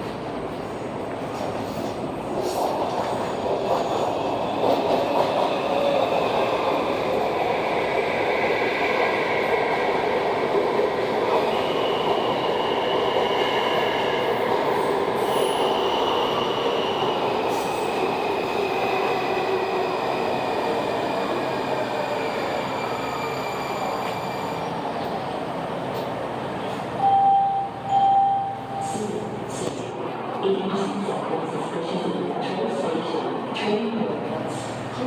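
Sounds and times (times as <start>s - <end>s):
subway cars rumbling: 0.0s - 35.0s
train wheels squealing: 11.4s - 25.2s.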